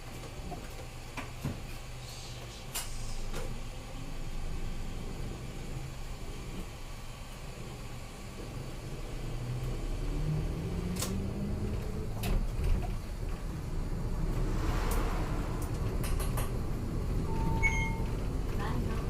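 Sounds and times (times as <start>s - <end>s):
bus engine accelerating: 7.6s - 19.0s
brief hiss: 14.4s - 16.6s.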